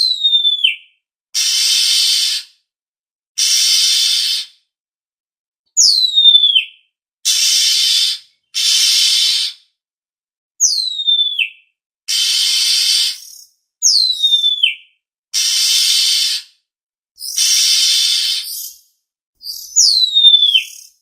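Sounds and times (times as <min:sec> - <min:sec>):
harsh hissing bird rasps: 0:01.4 - 0:02.6, 0:03.4 - 0:04.6, 0:07.3 - 0:09.6, 0:12.1 - 0:13.5, 0:15.4 - 0:16.6, 0:17.2 - 0:18.8
falling whistled bird notes: 0:10.6 - 0:14.8, 0:19.4 - 0:21.0.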